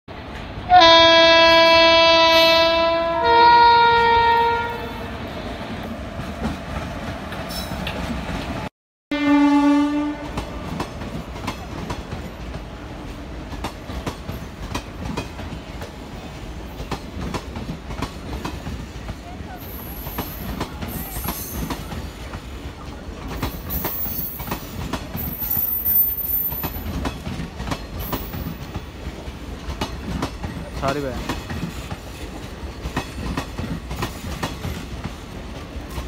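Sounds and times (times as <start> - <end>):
train coaches rumbling past: 0.1 - 36.0
locomotive horn chord: 0.7 - 5.0, 9.1 - 10.4
wheels clacking over rail joints: 19.9 - 36.0.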